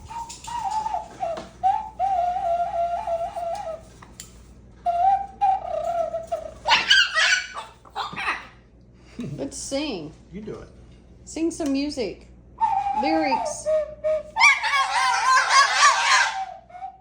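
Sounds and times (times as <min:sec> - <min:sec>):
parrot whistling a tune: 0:00.0 - 0:04.0, 0:04.9 - 0:07.6, 0:12.6 - 0:17.0
parrot squawking: 0:05.6 - 0:08.6, 0:14.4 - 0:16.7.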